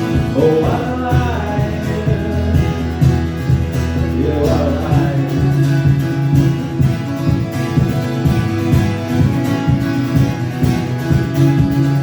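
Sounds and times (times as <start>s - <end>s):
person singing: 0.0s - 3.3s, 4.0s - 6.0s
acoustic guitar strumming: 0.0s - 12.0s.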